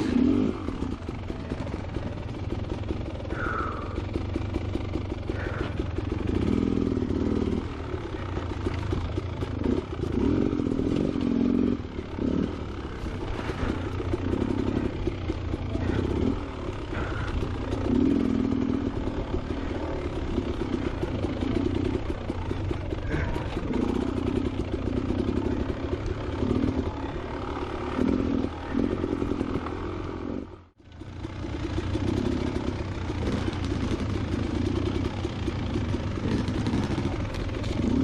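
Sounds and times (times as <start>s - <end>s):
dirt bike engine revving: 0.0s - 38.0s
clatter on rocky ground: 33.1s - 38.0s.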